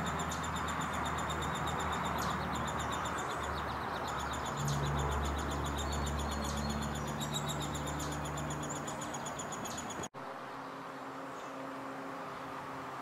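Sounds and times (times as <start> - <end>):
bird chirping rapidly: 0.0 - 10.1.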